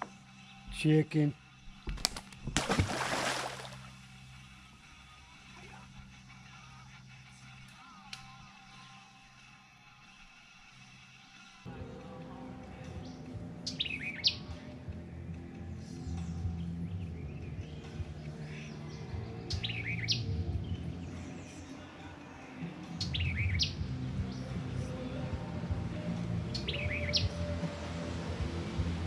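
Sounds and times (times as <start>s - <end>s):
songbird whistling call: 13.6s - 14.5s, 19.5s - 20.8s, 23.0s - 23.8s, 26.5s - 27.4s.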